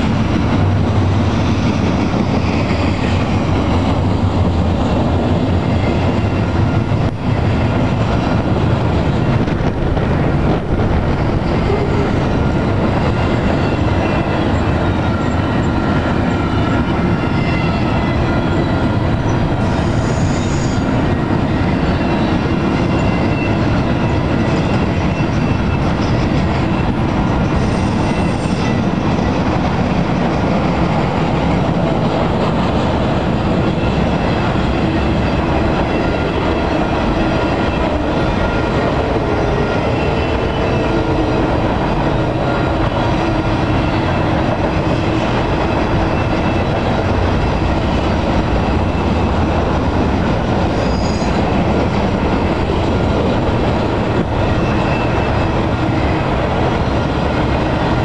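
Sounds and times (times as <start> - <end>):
train wheels rumbling on rails: 0.0 - 58.0
high wheel squeal: 19.6 - 20.9, 50.7 - 51.6, 54.5 - 56.1.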